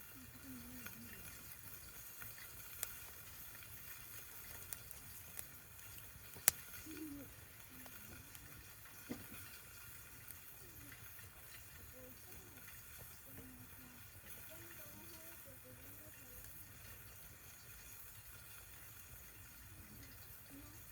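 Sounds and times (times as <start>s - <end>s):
campfire crackling and sizzling: 0.0s - 20.9s
fire popping: 0.0s - 20.9s.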